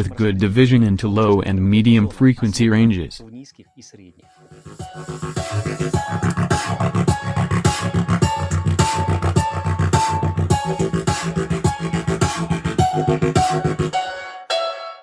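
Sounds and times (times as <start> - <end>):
bass-heavy music with steady beat: 4.3 - 14.2.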